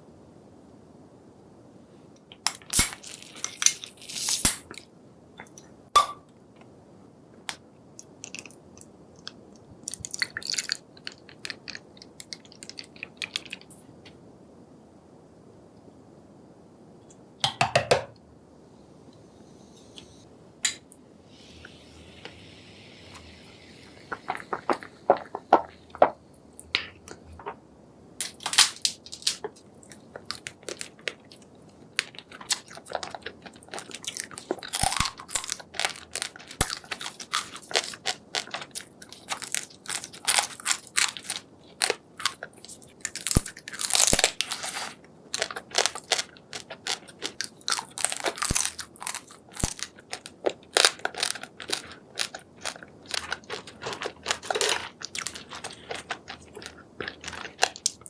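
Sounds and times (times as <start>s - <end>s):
chewing and biting seafood: 32.0s - 58.0s.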